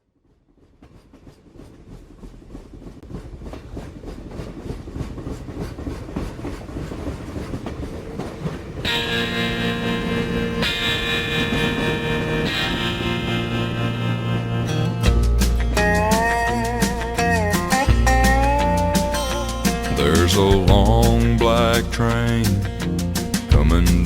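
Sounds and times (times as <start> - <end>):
train wheels clacking on rails: 0.2 - 24.0
music with sustained chords: 8.9 - 20.5.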